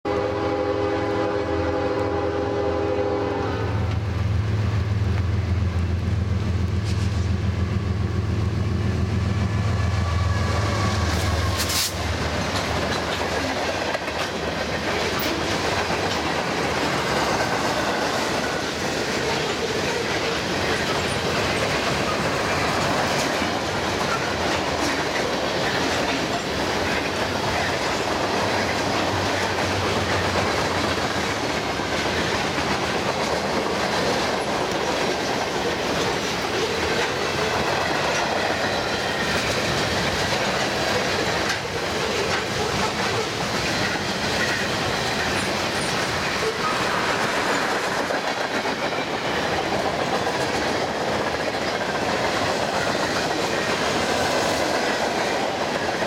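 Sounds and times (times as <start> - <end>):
train horn: 0.0 - 4.1, 9.7 - 12.1
train wheels clacking on rails: 9.1 - 56.0.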